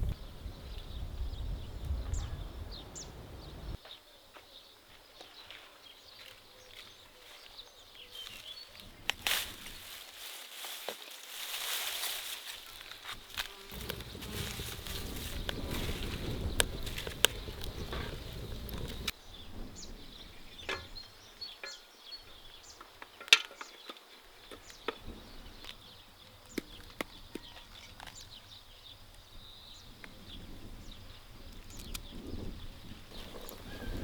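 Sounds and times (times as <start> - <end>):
low outdoor rumble: 0.0 - 3.8, 12.7 - 19.1
faint birds or insects: 0.0 - 34.0
snaps of vegetables being picked: 8.3 - 19.2, 31.6 - 32.1.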